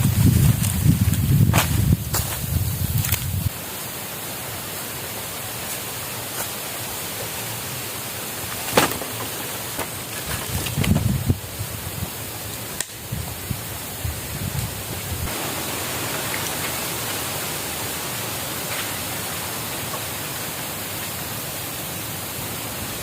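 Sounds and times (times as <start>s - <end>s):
rushing water hiss: 0.0s - 23.0s.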